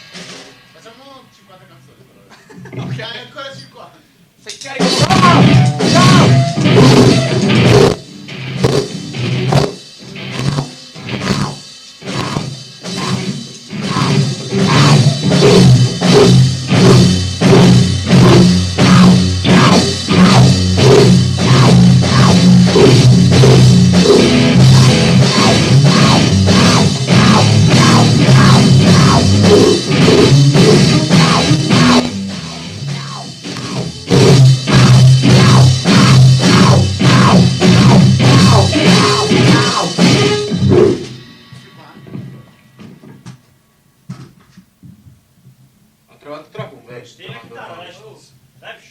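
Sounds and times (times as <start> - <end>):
drums hitting a steady beat: 0.0 - 1.3, 4.2 - 46.0
band playing rock: 4.8 - 43.0.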